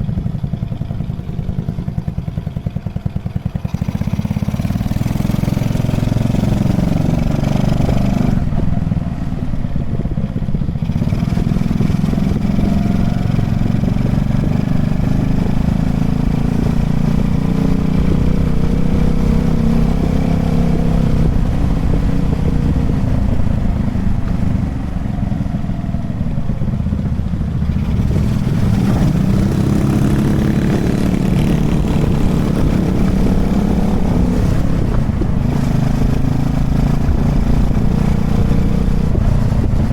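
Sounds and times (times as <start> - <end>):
small motorbike engine running: 0.0 - 17.3.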